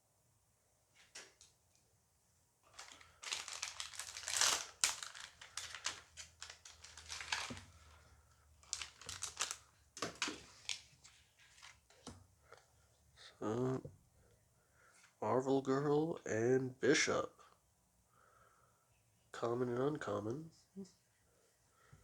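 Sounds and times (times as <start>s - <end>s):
foil wrapper crinkling and tearing: 2.7s - 8.0s, 8.6s - 11.9s.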